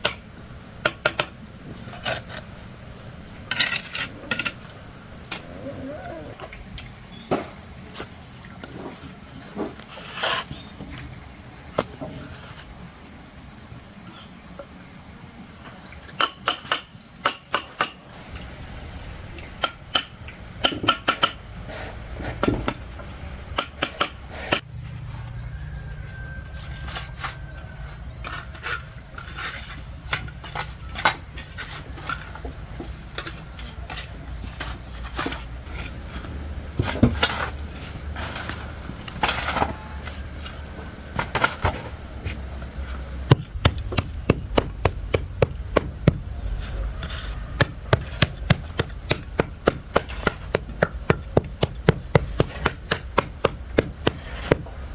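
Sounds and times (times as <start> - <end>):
taps and knocks of building work: 16.1 - 18.0, 19.5 - 21.5, 22.2 - 24.7, 38.4 - 46.4, 47.6 - 54.9
low steady rumble: 41.8 - 54.9.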